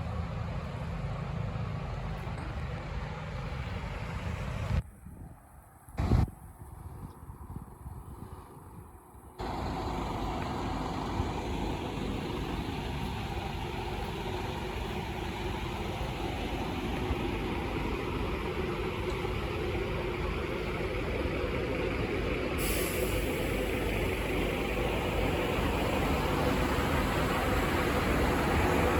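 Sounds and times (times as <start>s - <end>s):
bus diesel engine idling: 0.0s - 4.7s, 7.5s - 28.9s
high hiss: 22.6s - 26.4s.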